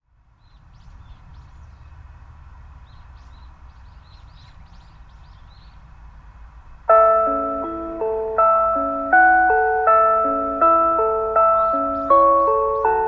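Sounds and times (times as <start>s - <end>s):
small birds chirping: 0.3s - 13.0s
loudspeaker chime chord: 6.9s - 13.0s.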